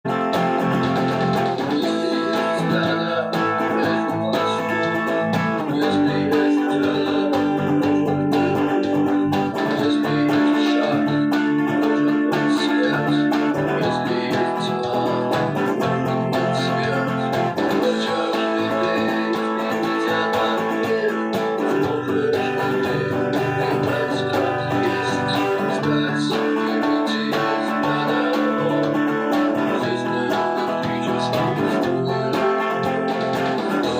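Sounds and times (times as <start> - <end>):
guitar playing melodic tune: 0.0 - 33.9.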